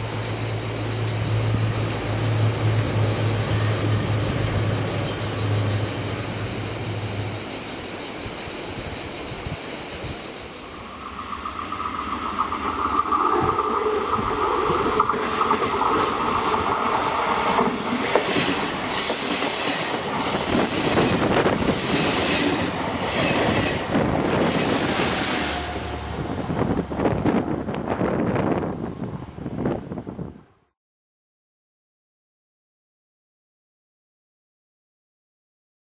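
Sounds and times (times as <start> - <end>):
train passing: 0.0 - 30.6
high-pitched wheel squeal: 10.6 - 27.7.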